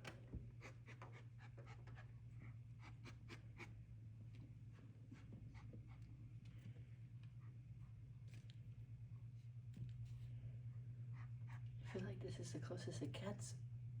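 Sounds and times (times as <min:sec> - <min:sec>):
steady low hum: 0:00.0 - 0:14.0
soft ticks and rustles: 0:04.3 - 0:10.4.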